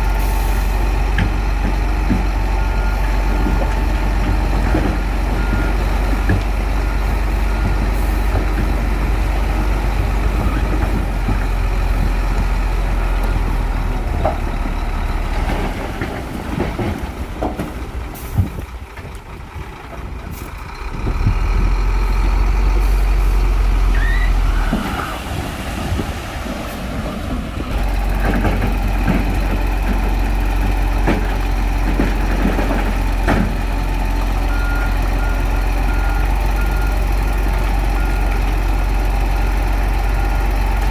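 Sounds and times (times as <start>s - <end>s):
bulldozer diesel engine under load: 0.0s - 40.9s
reversing alarm beeps: 34.5s - 37.0s.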